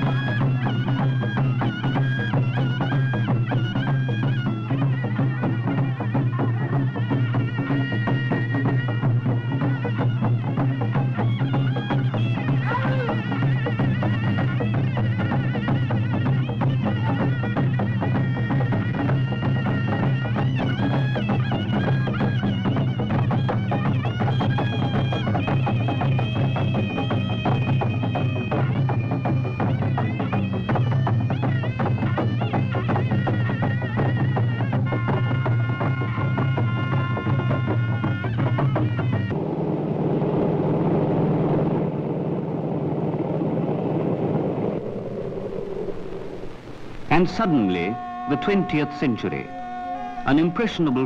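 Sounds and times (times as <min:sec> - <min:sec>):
fast drumming: 0:00.0 - 0:39.3
shrill wind instrument: 0:00.0 - 0:39.4, 0:44.7 - 0:51.0
motor engine drone: 0:38.7 - 0:48.6.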